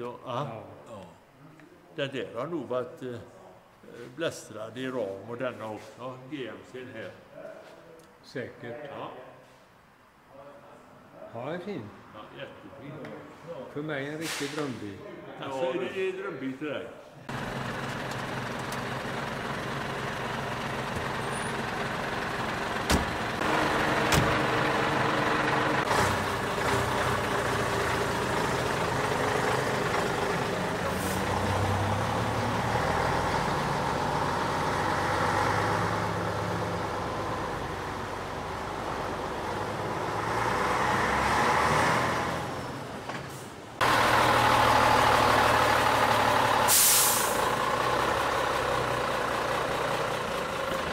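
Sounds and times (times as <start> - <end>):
heavy truck engine running: 17.3 - 50.9.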